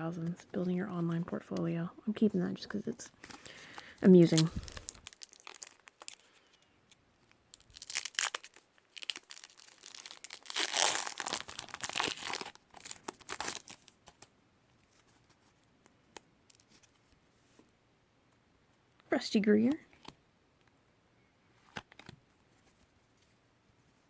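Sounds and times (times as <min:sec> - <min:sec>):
wrapper tearing and crinkling: 0:03.2 - 0:06.3, 0:07.5 - 0:14.3.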